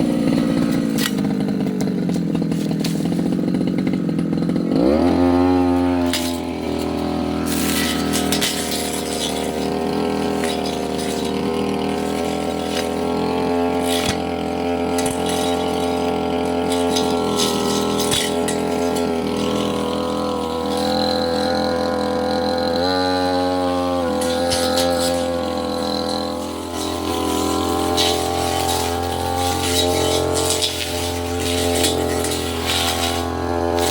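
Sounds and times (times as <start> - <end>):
brush cutter engine running: 0.0 - 33.9
blade ticking against brush: 5.6 - 33.9.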